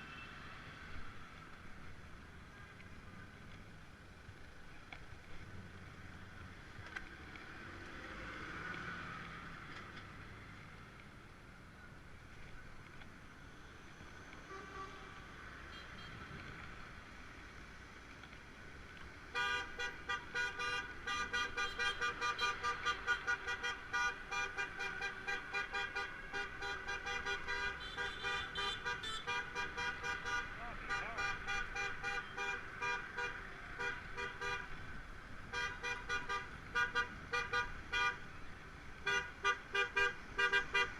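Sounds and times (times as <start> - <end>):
street noise: 0.0 - 40.9
vehicle horns tooting: 14.4 - 16.2, 19.3 - 34.8, 35.5 - 38.3, 39.0 - 40.9.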